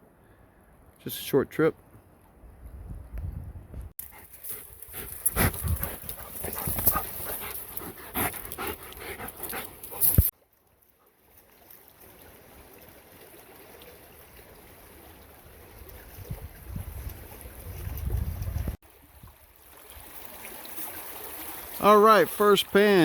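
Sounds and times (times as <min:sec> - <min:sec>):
dog panting: 0:04.0 - 0:10.3
running creek water: 0:04.0 - 0:23.0.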